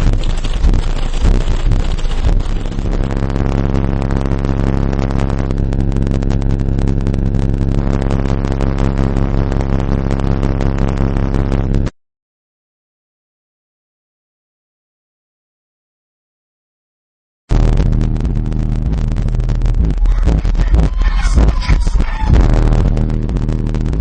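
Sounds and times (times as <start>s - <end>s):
loud distorted subwoofer bass: 0.0s - 11.9s, 17.5s - 24.0s.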